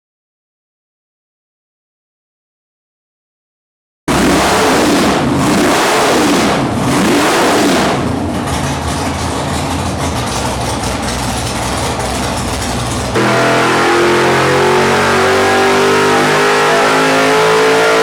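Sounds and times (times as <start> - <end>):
v eight engine revving and idling: 4.1 - 18.0.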